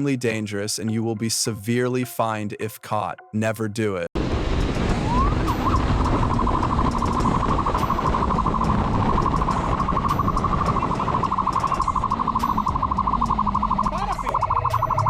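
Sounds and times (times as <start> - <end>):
low rumble: 4.2 - 15.0
police siren wailing: 4.7 - 15.0.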